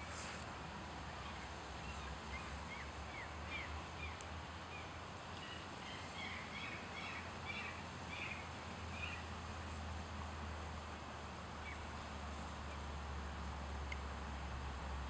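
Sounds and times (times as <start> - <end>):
low background hum: 0.0 - 15.0
small birds chirping and twittering: 1.2 - 9.3.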